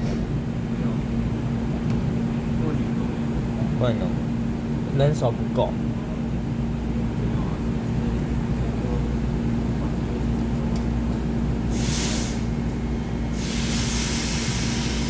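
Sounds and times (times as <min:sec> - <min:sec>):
low hum of train machinery: 0:00.0 - 0:15.0
short hiss: 0:11.7 - 0:12.5, 0:13.4 - 0:15.0.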